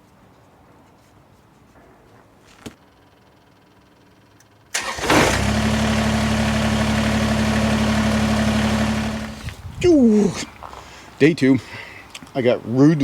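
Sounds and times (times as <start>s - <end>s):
engine cranking and idling: 4.7s - 9.5s.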